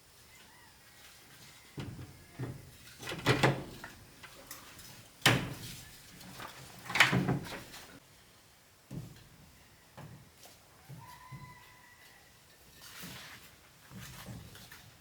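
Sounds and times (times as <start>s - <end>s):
knocks and clatters: 1.8s - 8.0s.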